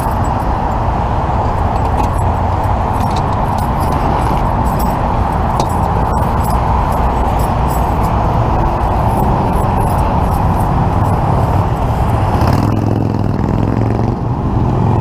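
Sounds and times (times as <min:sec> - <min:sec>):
traffic rumble: 0:00.0 - 0:15.0
debris scrapes and clinks: 0:01.6 - 0:12.2.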